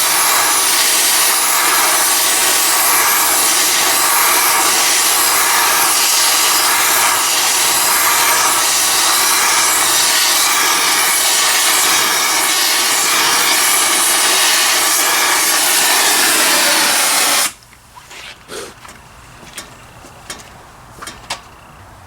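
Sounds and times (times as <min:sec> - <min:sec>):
gas torch flame hissing: 0:00.0 - 0:17.6
small metal knocks: 0:18.8 - 0:21.6.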